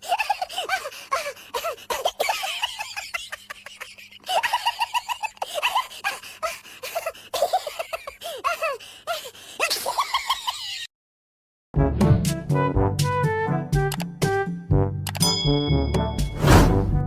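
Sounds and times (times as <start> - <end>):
person laughing: 0.0 - 8.8, 9.6 - 10.9.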